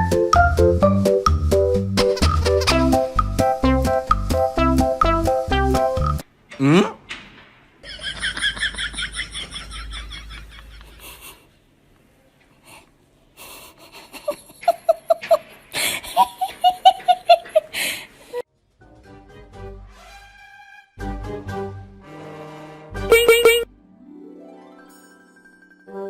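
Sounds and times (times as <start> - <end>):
lower laughter: 7.8 - 11.5, 13.4 - 17.8
high-pitched laughter: 13.8 - 15.5.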